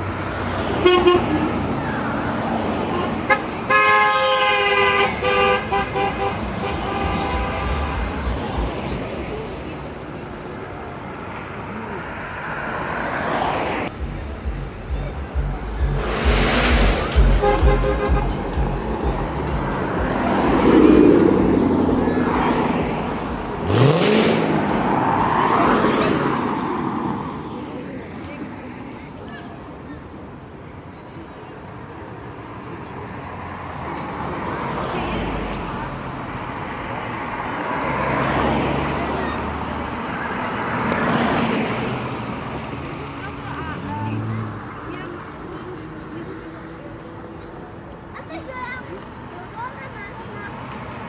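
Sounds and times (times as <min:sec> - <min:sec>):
car horn beeping: 0:00.8 - 0:01.4, 0:03.2 - 0:08.3, 0:17.1 - 0:19.5
car engine revving: 0:13.9 - 0:25.5.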